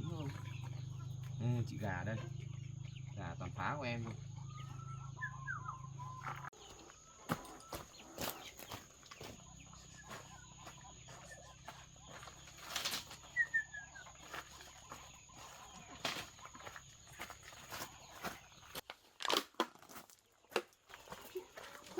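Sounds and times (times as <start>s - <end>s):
high chirps: 0.0s - 6.6s
chickens pecking: 0.0s - 21.9s.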